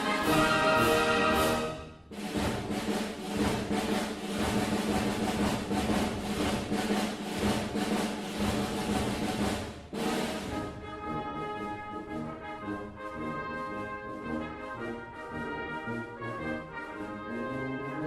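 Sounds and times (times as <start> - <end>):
sustained drum roll: 0.0 - 12.6
orchestral chords: 0.0 - 18.0.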